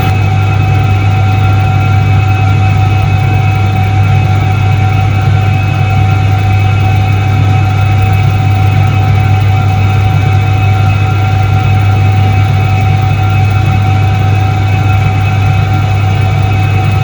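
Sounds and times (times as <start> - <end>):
high steady tones: 0.0 - 0.3
washing machine motor hum: 0.0 - 0.6.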